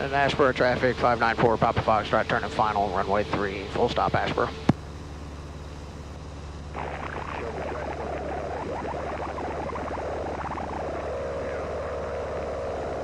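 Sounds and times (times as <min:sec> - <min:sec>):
aircraft engine droning: 0:00.0 - 0:13.0
wavering fluttering tone: 0:06.8 - 0:13.0.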